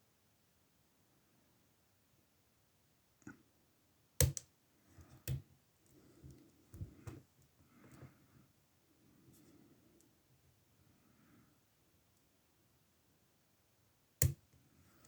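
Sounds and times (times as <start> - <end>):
soft handling rustle: 4.8 - 10.1.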